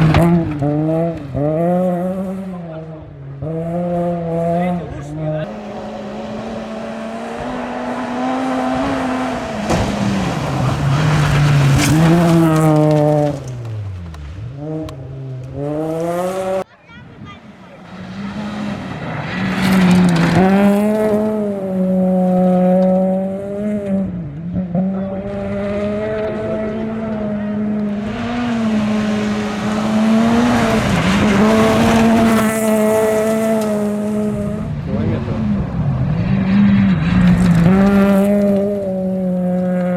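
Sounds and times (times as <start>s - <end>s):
car engine at full throttle: 0.0s - 16.6s, 17.6s - 39.9s
tyre noise hiss: 5.5s - 11.8s.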